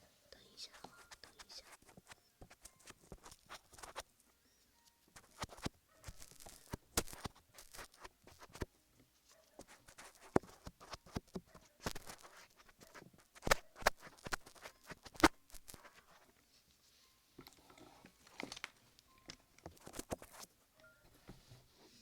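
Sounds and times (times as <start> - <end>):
fingers rubbing an ear: 0.4 - 4.1, 5.2 - 8.7, 9.4 - 16.2, 19.8 - 20.5
sticky clicks and crackles: 5.2 - 8.7, 9.6 - 16.2, 18.2 - 20.5.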